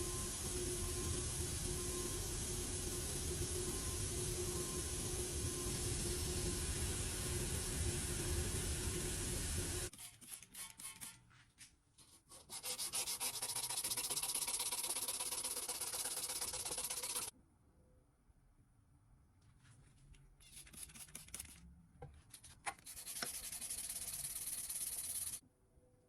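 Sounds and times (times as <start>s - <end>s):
steady hiss: 0.0s - 9.9s
sanding metal: 12.3s - 17.3s, 22.8s - 25.4s.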